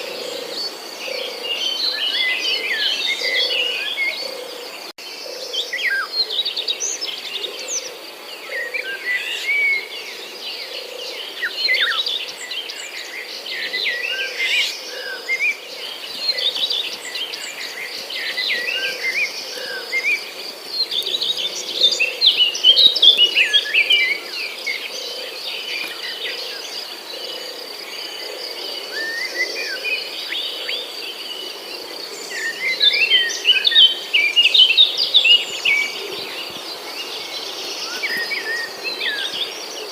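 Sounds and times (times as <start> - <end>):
small birds chirping: 5.7 - 39.9.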